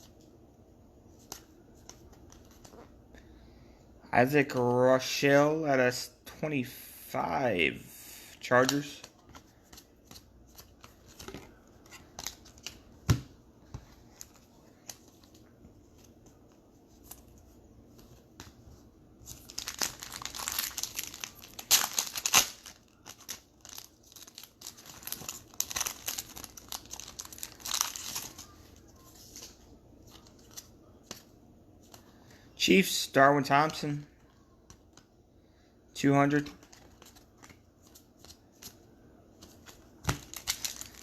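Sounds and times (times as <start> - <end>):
foil wrapper crinkling and tearing: 19.3 - 28.6, 40.1 - 41.0.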